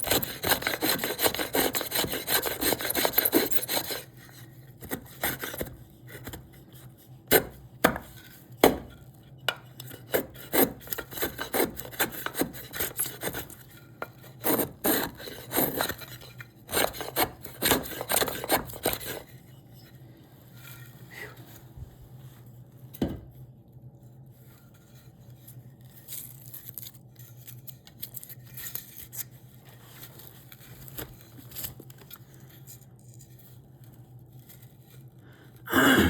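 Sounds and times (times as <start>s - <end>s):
rasp scraping wood: 0.0s - 6.4s, 9.9s - 19.3s.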